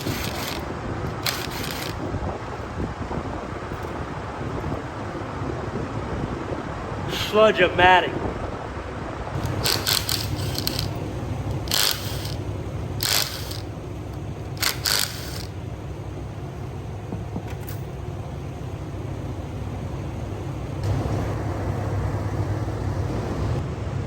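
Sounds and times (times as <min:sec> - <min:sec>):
power tool bursts: 0:00.0 - 0:02.0, 0:09.4 - 0:12.4, 0:13.0 - 0:13.7, 0:14.6 - 0:15.5
steady low hum: 0:00.0 - 0:24.0.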